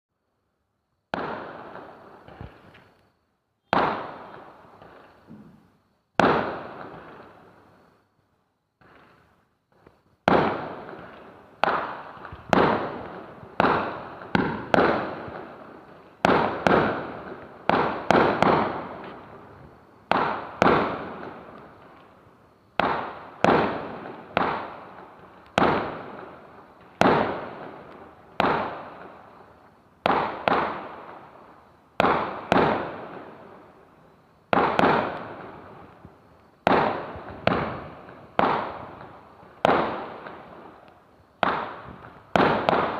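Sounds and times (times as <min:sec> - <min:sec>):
fireworks bangs: 0:01.1 - 0:02.9, 0:03.7 - 0:07.7, 0:08.8 - 0:42.9.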